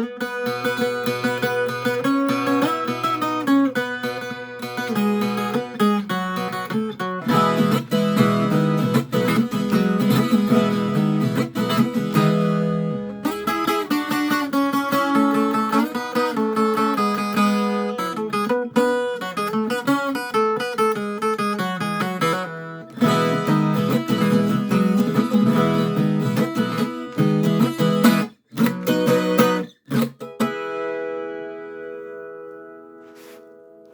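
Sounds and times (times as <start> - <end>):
guitar strummed and plucked: 0.0 - 33.9.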